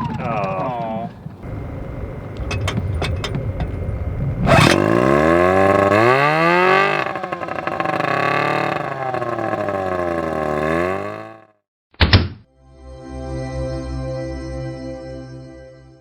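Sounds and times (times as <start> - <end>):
small engine popping: 1.2 - 11.5
small engine running unevenly: 1.2 - 11.5.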